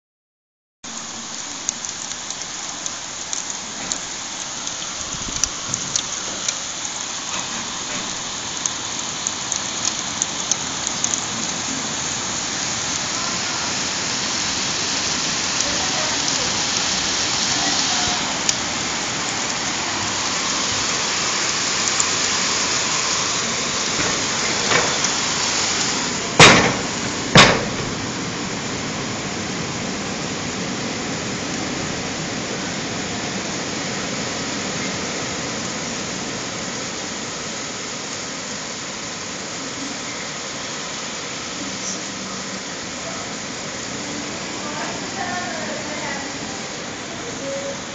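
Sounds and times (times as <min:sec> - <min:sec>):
rain falling: 0:00.8 - 0:47.9
loud sharp bangs: 0:26.4 - 0:28.2.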